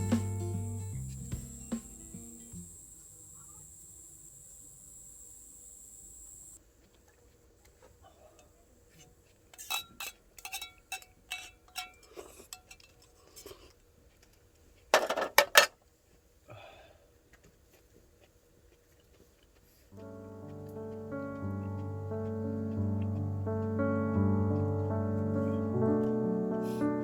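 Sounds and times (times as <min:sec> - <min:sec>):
metal cookware clinking: 0:09.6 - 0:13.0.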